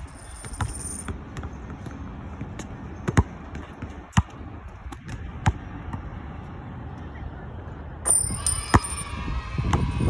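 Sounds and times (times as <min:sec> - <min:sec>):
basketball bouncing on hard court: 0:00.4 - 0:06.1.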